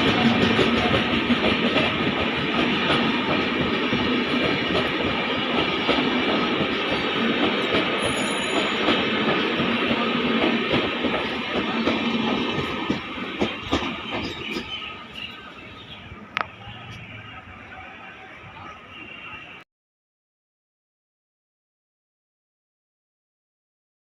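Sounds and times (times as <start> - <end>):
passenger train rumbling past: 0.0 - 19.6.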